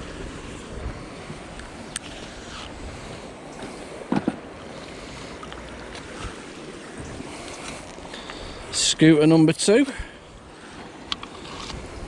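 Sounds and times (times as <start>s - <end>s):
wind on microphone: 0.0s - 3.7s, 11.4s - 12.0s
water noise: 0.0s - 12.0s.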